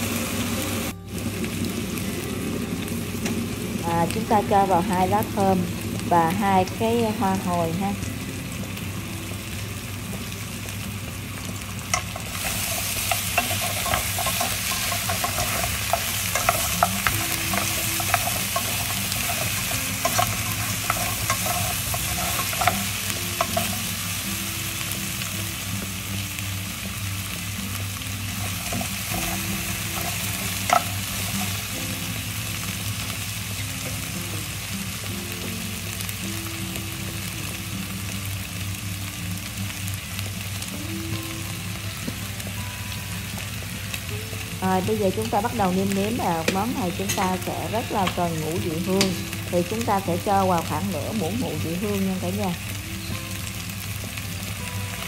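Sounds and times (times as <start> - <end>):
meat sizzling in oil: 0.0 - 55.0
tongs clacking against pot: 28.6 - 31.6.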